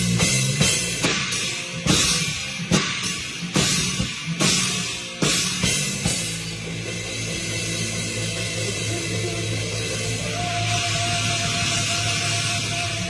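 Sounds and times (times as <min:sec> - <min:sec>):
cymbal and bass drum crashes: 0:00.0 - 0:10.2
rock band playing: 0:00.0 - 0:13.0.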